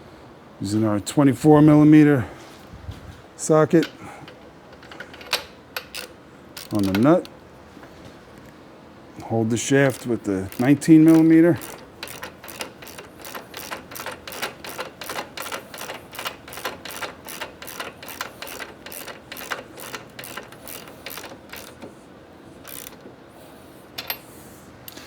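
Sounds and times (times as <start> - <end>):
socket ratchet clicking: 3.8 - 7.4, 9.8 - 22.0, 22.6 - 23.1.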